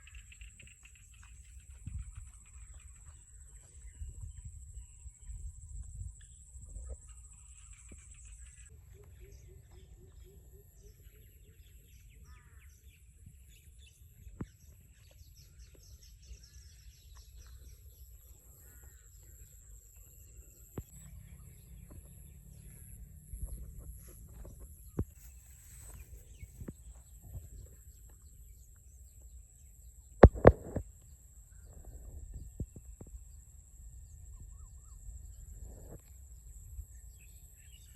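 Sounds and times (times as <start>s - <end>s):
faint bird calls: 0.0s - 13.1s, 14.4s - 28.7s.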